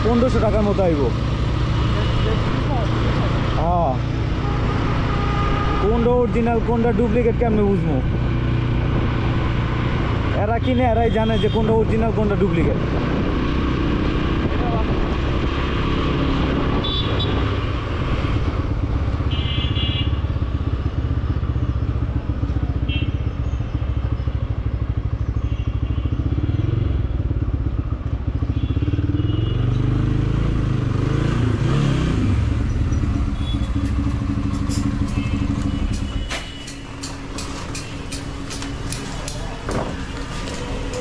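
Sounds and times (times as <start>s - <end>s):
motorcycle engine revving: 12.2s - 25.3s, 26.0s - 41.0s.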